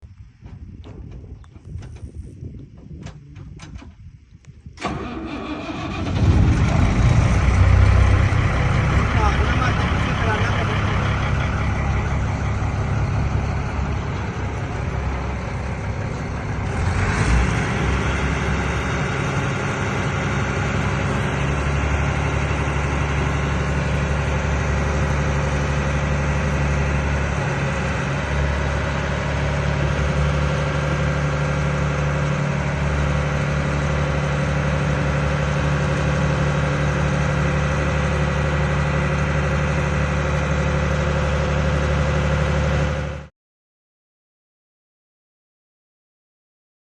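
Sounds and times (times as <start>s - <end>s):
diesel engine idling: 4.8s - 43.3s
engine knock: 5.8s - 43.2s.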